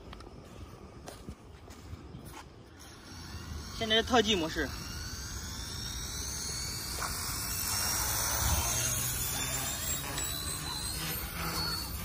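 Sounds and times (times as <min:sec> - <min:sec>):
model helicopter rotor whine: 0:02.6 - 0:12.0.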